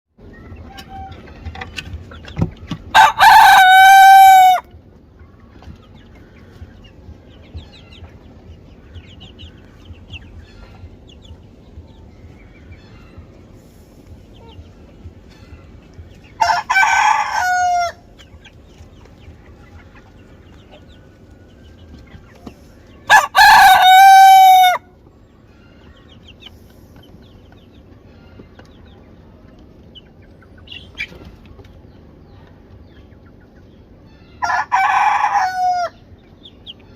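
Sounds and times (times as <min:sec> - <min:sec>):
rooster crowing: 0:02.9 - 0:04.7, 0:16.4 - 0:18.0, 0:23.1 - 0:24.9, 0:34.4 - 0:36.0.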